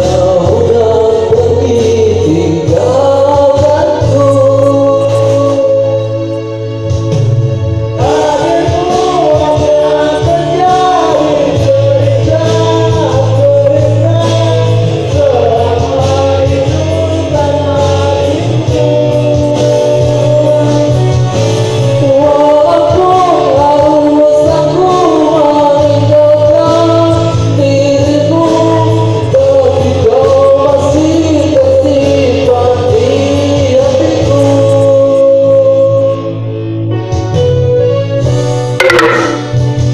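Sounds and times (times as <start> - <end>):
person singing: 0.0 - 6.2, 8.0 - 21.1
instrumental accompaniment with bass: 0.0 - 39.9.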